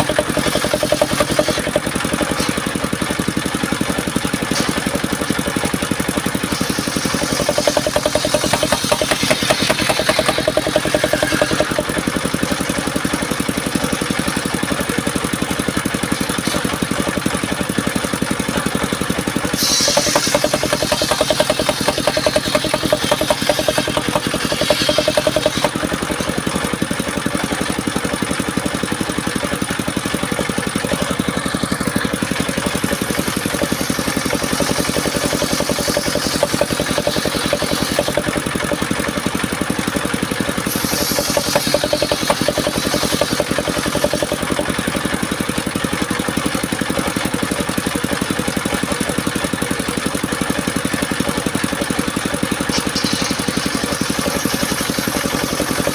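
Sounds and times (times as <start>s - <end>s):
sawmill engine running: 0.0s - 55.9s.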